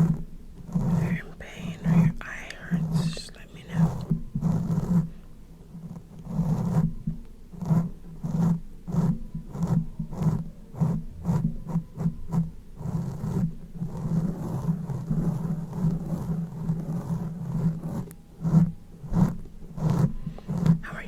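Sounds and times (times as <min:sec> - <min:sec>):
rubbing or scraping strokes: 0:07.6 - 0:21.0.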